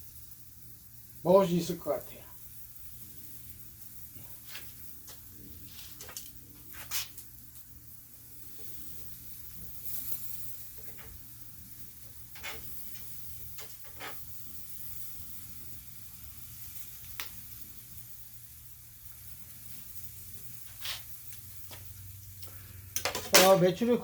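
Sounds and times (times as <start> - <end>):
meat sizzling on a grill: 0.0 - 24.0
sharp pops and crackles: 2.3 - 24.0
brief hiss: 5.6 - 7.3, 20.6 - 23.6.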